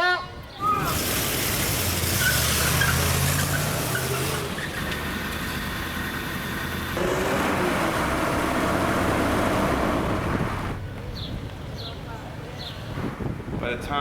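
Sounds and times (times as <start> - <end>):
street noise: 0.0 - 14.0
car engine running: 4.2 - 10.8.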